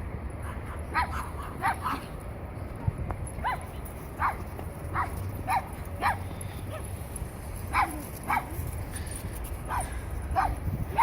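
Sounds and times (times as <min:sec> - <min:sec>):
steady low rumble: 0:00.0 - 0:11.0
dog barking: 0:00.4 - 0:02.0, 0:09.7 - 0:11.0.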